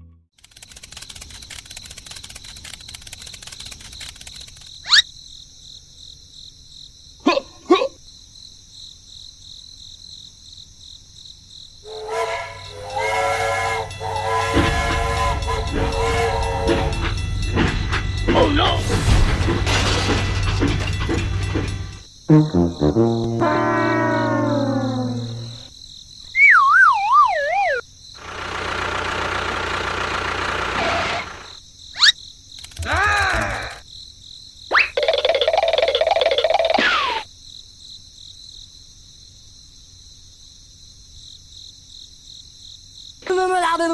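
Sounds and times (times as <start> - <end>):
insects chirping: 0.4 - 43.9
loud horn-like tone: 11.9 - 18.4, 22.3 - 25.7
siren-like warbling tone: 22.3 - 25.7.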